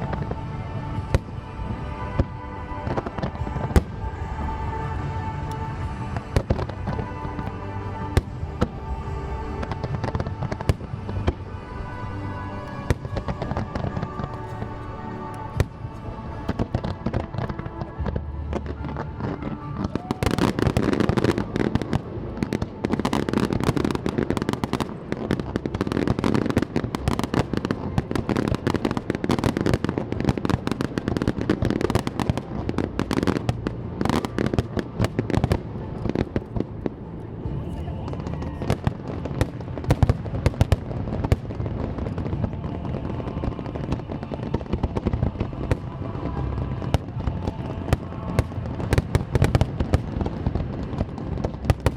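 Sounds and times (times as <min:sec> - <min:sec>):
fireworks bursting and crackling: 0:00.0 - 0:51.9
music: 0:00.0 - 0:51.9.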